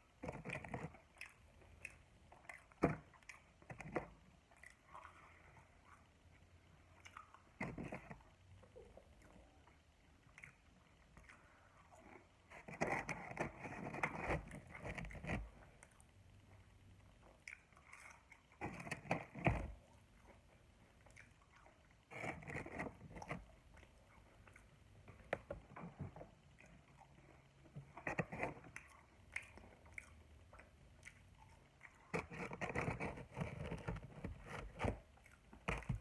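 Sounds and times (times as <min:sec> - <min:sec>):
wet crackly mouth sounds: 0:06.9 - 0:09.6, 0:17.2 - 0:19.3, 0:26.6 - 0:33.8
bites and chewing: 0:17.2 - 0:36.0.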